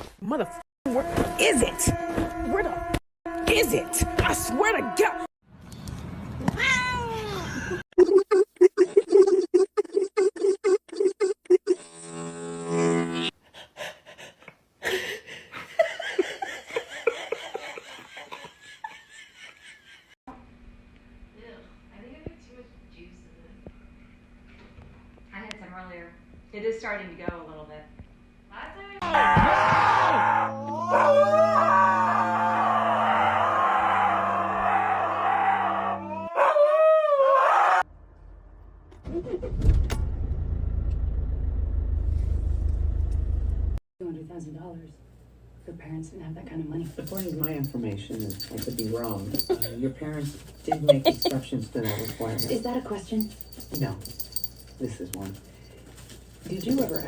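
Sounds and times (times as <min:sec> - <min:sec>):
person laughing: 0:14.8 - 0:20.1, 0:49.4 - 0:49.8, 0:50.7 - 0:52.6
animal howling: 0:29.0 - 0:37.9.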